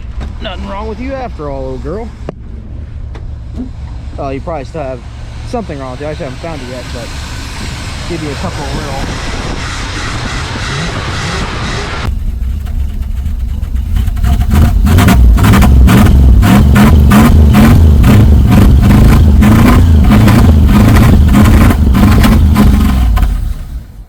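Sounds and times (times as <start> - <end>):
car engine revving unevenly: 0.0 - 24.0.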